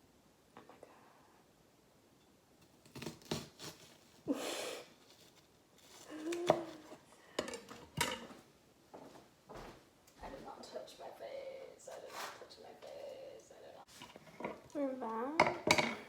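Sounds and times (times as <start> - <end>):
utensils and dishes clattering: 6.5 - 8.3, 15.4 - 16.0.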